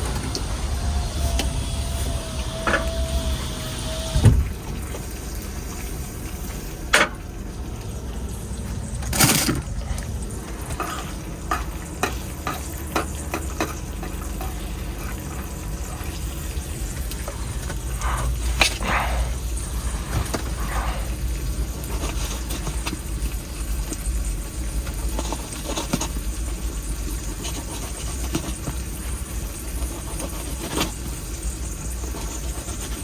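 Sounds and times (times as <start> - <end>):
steady low hum: 0.0 - 25.3
food sizzling in frying pan: 10.2 - 18.7.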